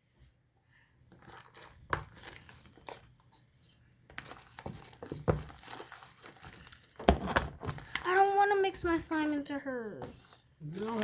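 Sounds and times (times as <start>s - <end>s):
slime clicking and crackling: 1.0s - 8.7s.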